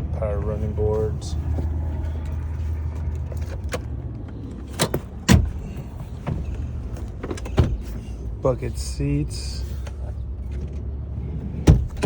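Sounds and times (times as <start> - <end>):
car door thunk: 4.7 - 5.6, 11.6 - 12.0.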